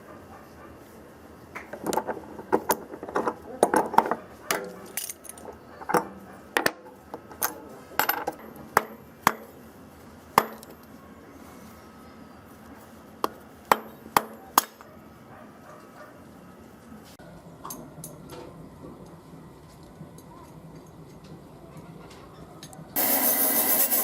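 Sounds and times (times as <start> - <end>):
small metal parts clinking: 1.9 - 6.0, 7.3 - 8.6.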